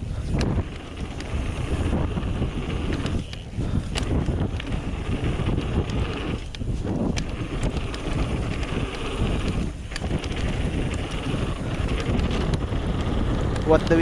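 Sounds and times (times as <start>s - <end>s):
wind buffeting microphone: 0.2s - 14.0s
bike clicks and rattles: 13.0s - 14.0s
tyres rolling on dirt: 13.0s - 14.0s.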